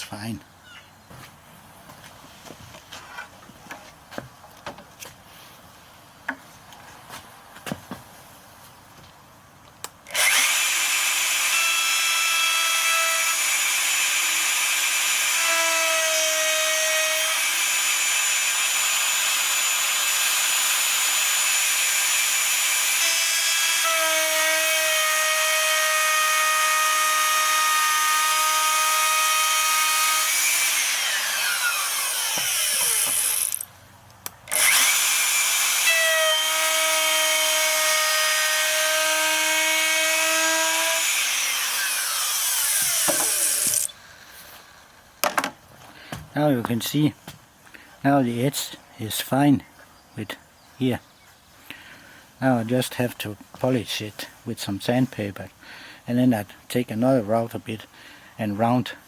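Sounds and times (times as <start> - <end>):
router whining: 10.1 - 33.7, 34.5 - 44.9.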